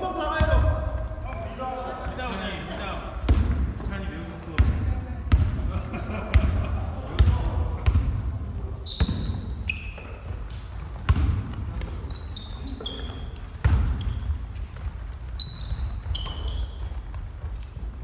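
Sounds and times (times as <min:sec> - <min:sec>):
shoes squeaking on gym floor: 0:08.8 - 0:18.0
basketball thuds: 0:11.0 - 0:11.8.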